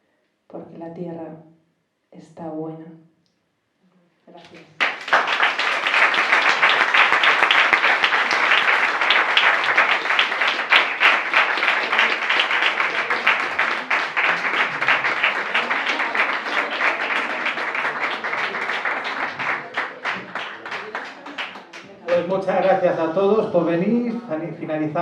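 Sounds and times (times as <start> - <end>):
audience applauding: 4.4 - 22.5.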